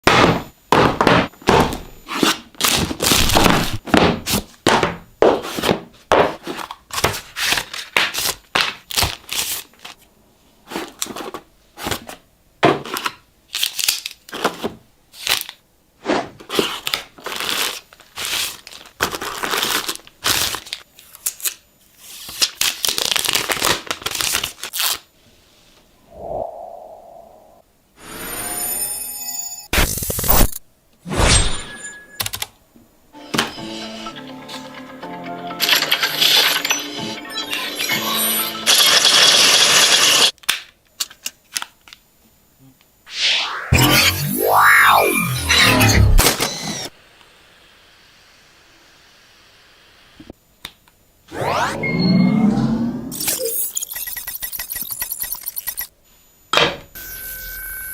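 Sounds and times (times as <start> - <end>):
plastic and paper crinkling: 16.5 - 25.0.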